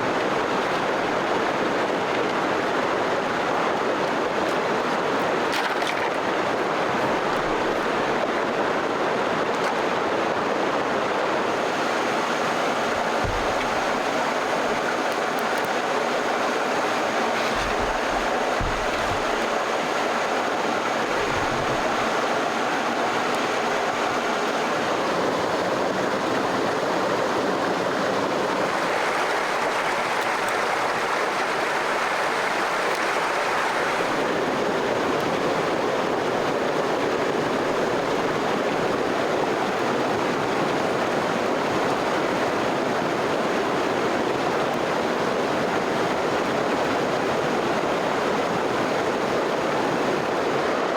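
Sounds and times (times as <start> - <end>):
flowing stream rushing: 0.0 - 50.9
low thuds: 13.2 - 14.0, 17.4 - 19.4.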